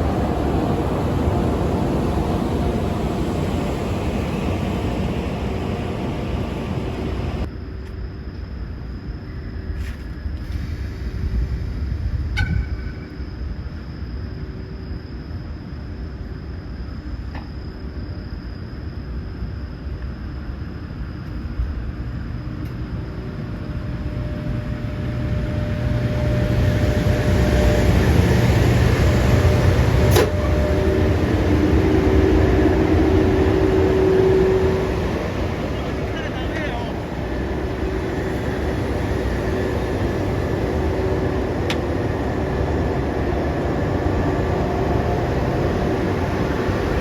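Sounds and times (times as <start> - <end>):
train rumbling on rails: 0.0 - 47.0
steady hum: 21.6 - 47.0
sharp clicks of train wheels: 24.6 - 33.6, 34.6 - 44.6.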